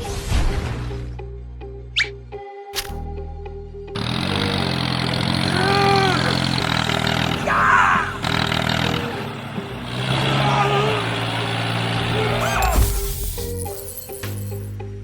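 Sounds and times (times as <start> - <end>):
engine running: 3.9 - 14.7.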